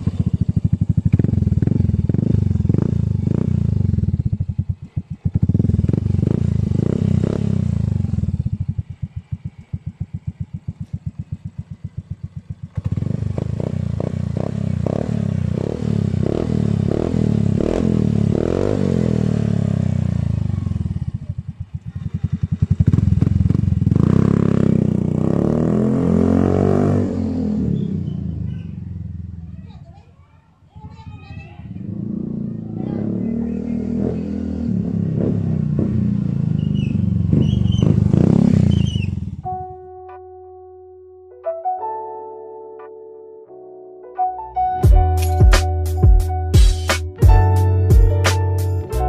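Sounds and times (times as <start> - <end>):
scooter engine revving: 0.0 - 29.6, 30.8 - 39.4.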